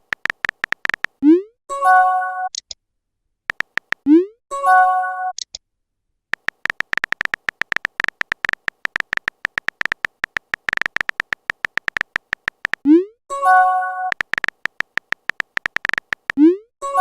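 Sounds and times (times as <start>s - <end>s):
keyboard tap clicks: 0.0s - 1.2s, 3.5s - 4.1s, 6.4s - 12.8s, 14.1s - 16.4s.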